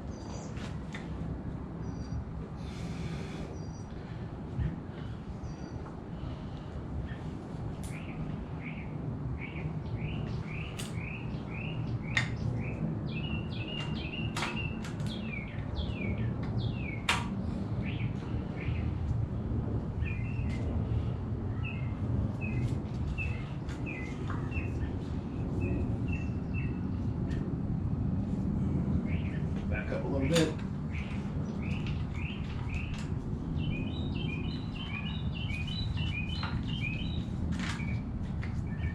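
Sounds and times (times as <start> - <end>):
songbird chirping: 29.1 - 38.0.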